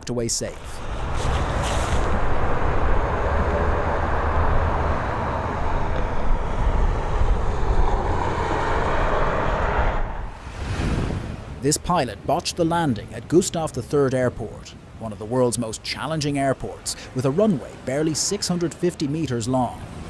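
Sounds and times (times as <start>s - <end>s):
jet airliner landing: 0.6s - 11.6s.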